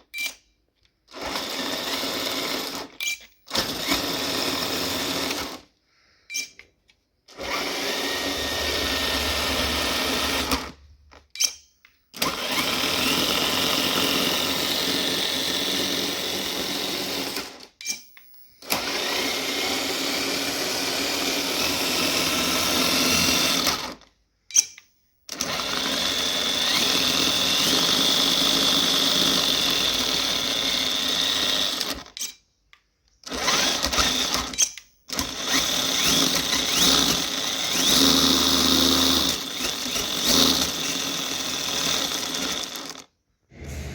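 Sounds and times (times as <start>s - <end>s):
small electric motor running: 7.4s - 10.6s, 35.2s - 43.0s.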